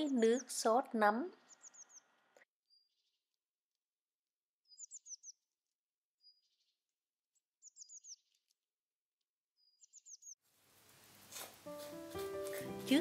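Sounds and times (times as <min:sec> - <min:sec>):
small songbird singing: 0:00.0 - 0:02.1, 0:02.7 - 0:03.3, 0:04.6 - 0:05.6, 0:06.2 - 0:06.8, 0:07.6 - 0:08.6, 0:09.6 - 0:10.4
soft bird chirps: 0:00.0 - 0:03.4, 0:04.6 - 0:08.6, 0:09.5 - 0:10.4.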